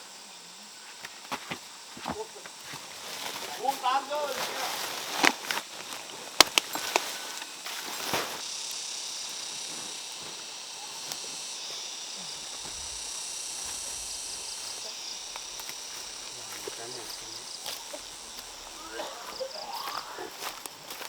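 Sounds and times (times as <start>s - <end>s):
insects buzzing: 0.0s - 21.0s
rapid insect chirps: 0.0s - 21.0s.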